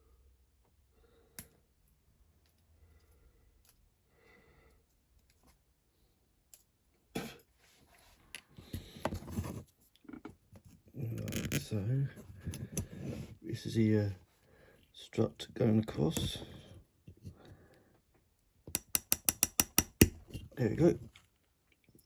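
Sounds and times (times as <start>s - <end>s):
rustling and scraping: 7.6s - 14.4s.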